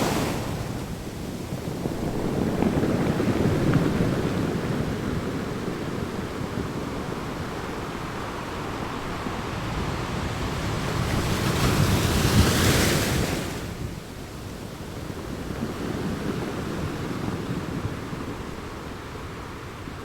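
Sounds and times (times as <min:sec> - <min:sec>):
sea waves breaking: 0:00.0 - 0:13.9.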